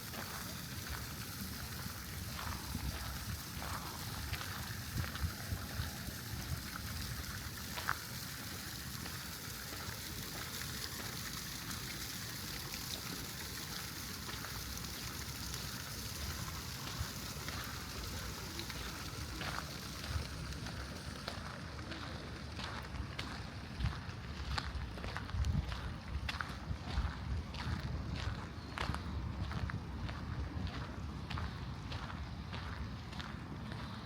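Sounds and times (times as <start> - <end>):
steady rain hiss: 0.0 - 25.1.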